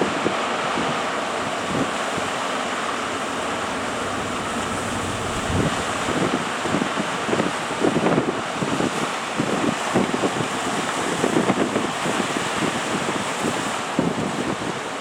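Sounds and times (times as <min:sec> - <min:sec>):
wind buffeting microphone: 0:00.0 - 0:14.9
surf breaking: 0:01.4 - 0:07.8.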